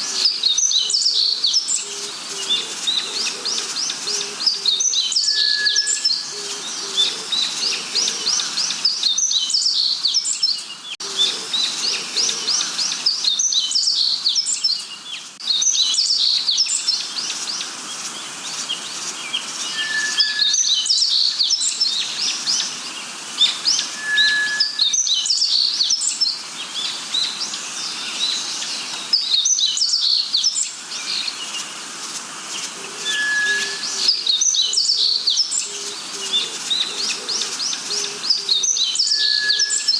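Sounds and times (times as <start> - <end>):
birds chirping: 0.0 - 31.8, 32.5 - 39.9
clear whistled bird note: 19.7 - 20.8, 23.8 - 25.0, 33.0 - 34.2.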